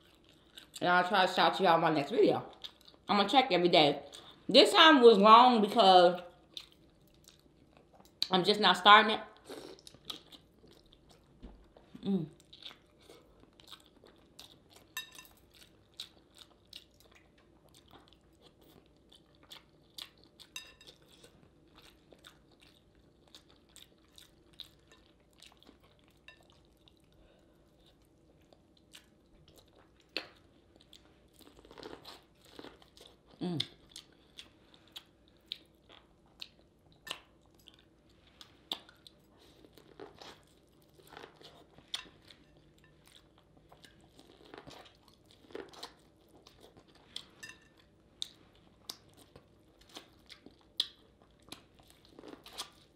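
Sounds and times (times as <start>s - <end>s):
person chewing with mouth clicks: 9.5s - 52.9s.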